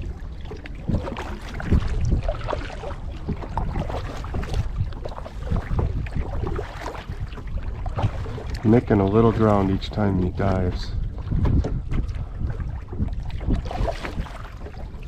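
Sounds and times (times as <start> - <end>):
paddle splashing in water: 0.0 - 15.0
wind rumble on microphone: 0.0 - 15.0.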